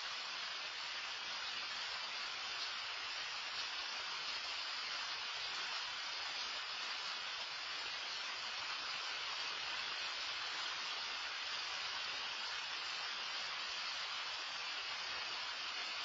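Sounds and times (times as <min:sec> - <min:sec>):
rain falling steadily: 0:00.0 - 0:16.0.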